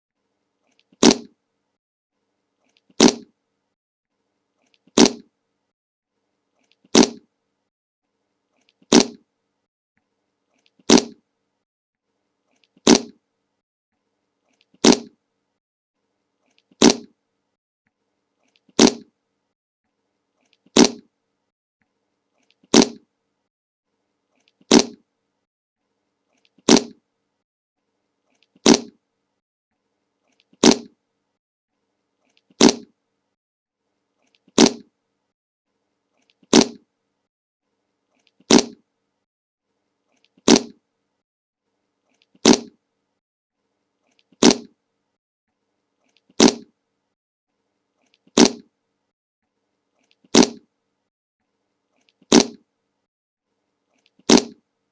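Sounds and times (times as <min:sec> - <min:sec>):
fart sound effect: 0:01.0 - 0:01.4, 0:03.0 - 0:03.3, 0:05.0 - 0:05.3, 0:06.9 - 0:07.3, 0:08.9 - 0:09.2, 0:10.9 - 0:11.2, 0:12.8 - 0:13.2, 0:14.8 - 0:15.2, 0:16.8 - 0:17.1, 0:18.8 - 0:19.1, 0:20.7 - 0:21.1, 0:22.7 - 0:23.0, 0:24.7 - 0:25.0, 0:26.6 - 0:27.0, 0:28.6 - 0:29.0, 0:30.6 - 0:31.0, 0:32.6 - 0:32.9, 0:34.6 - 0:34.9, 0:36.5 - 0:36.8, 0:38.5 - 0:38.8, 0:40.4 - 0:40.8, 0:42.4 - 0:42.8, 0:44.4 - 0:44.7, 0:46.4 - 0:46.7, 0:48.4 - 0:48.7, 0:50.3 - 0:50.6, 0:52.3 - 0:52.6, 0:54.3 - 0:54.6.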